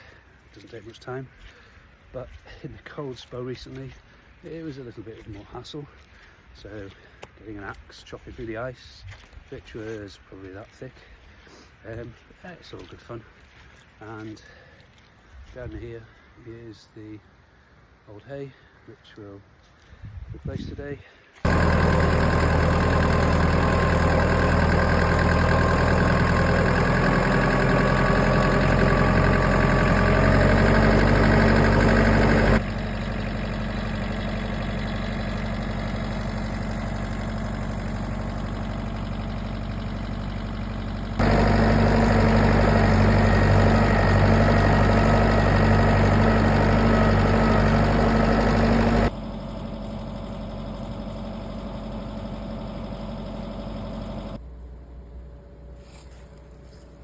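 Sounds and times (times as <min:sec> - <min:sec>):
vehicle engine idling: 0:21.4 - 0:57.0.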